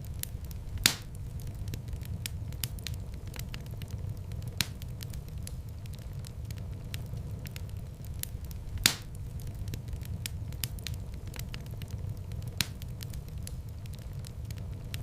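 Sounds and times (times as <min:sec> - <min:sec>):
fire popping: 0:00.0 - 0:15.0
wood fire crackling: 0:00.0 - 0:15.0.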